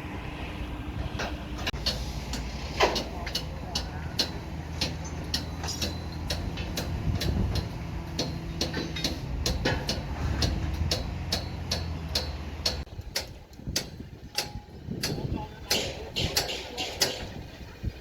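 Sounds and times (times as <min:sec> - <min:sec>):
engine running: 0:00.0 - 0:14.1.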